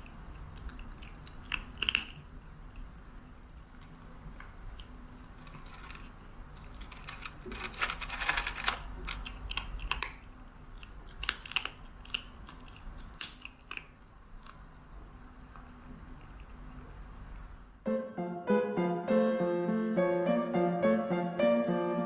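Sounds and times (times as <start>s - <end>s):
small clicks and crunches: 0.0s - 2.9s, 3.6s - 14.8s.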